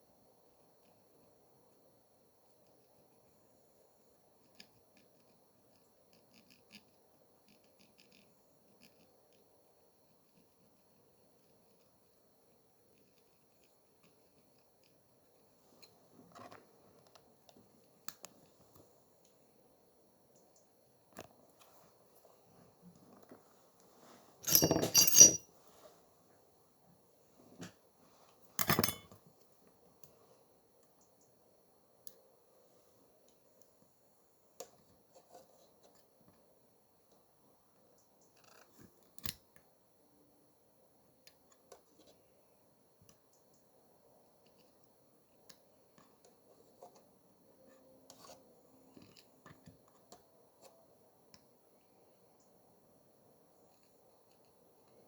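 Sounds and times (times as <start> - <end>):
small tools clicking and tapping: 24.4 - 25.4, 28.6 - 29.2.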